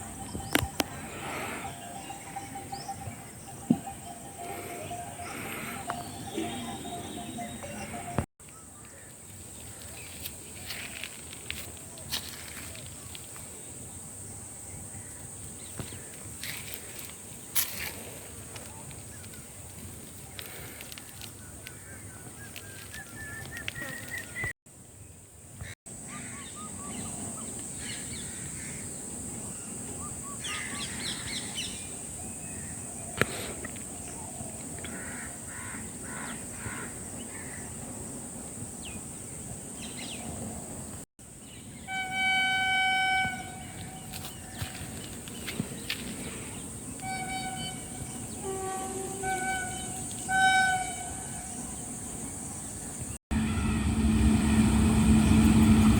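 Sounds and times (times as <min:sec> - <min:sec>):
high-pitched insect drone: 0:00.0 - 0:08.3
horn honking: 0:00.1 - 0:08.3, 0:41.8 - 0:44.3, 0:47.0 - 0:51.8, 0:53.3 - 0:55.9
crow caws: 0:34.8 - 0:37.7.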